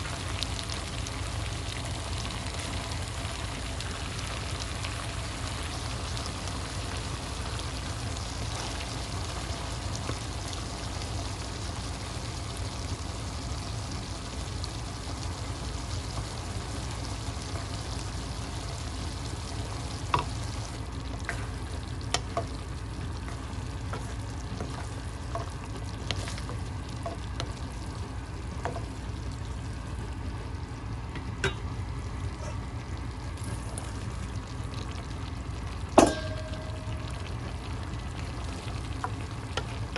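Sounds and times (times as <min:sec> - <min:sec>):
food sizzling in a pan: 0:00.0 - 0:30.2, 0:31.3 - 0:39.9
low hum: 0:15.1 - 0:39.9.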